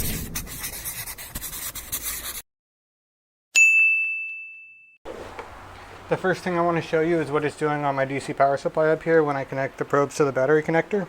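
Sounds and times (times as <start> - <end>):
bright high ping: 3.6 - 5.0.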